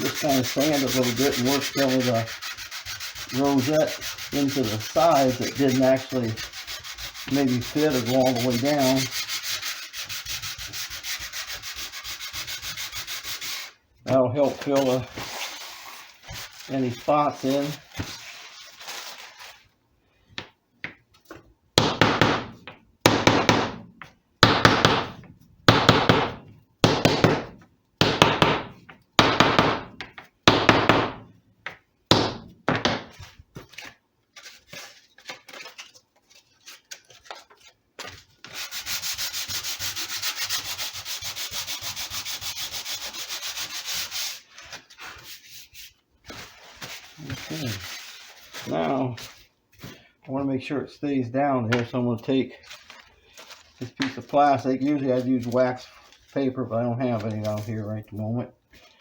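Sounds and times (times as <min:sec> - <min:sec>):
sanding wood with a block: 0:00.0 - 0:19.6, 0:38.4 - 0:48.9.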